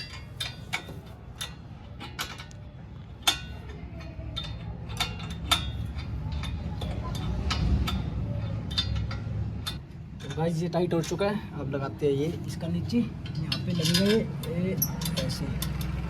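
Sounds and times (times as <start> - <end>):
spanner clicking on metal: 3.2 - 11.2, 13.2 - 16.0.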